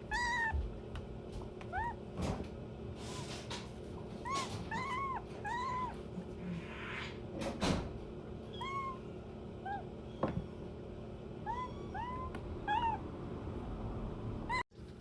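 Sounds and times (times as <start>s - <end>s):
kittens mewing: 0.0s - 0.8s, 1.6s - 2.2s, 4.1s - 7.2s, 8.5s - 13.1s.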